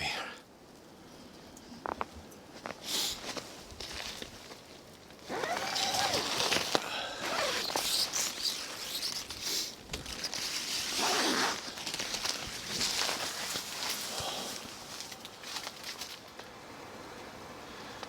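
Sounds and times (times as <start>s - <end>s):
tent zipper pulled: 5.3s - 13.6s.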